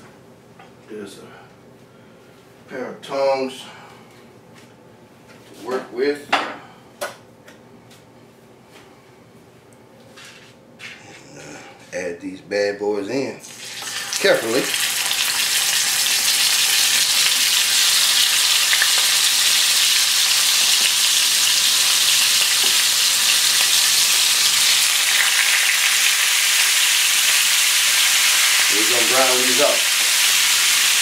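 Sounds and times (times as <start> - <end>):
meat sizzling in oil: 13.4 - 31.0.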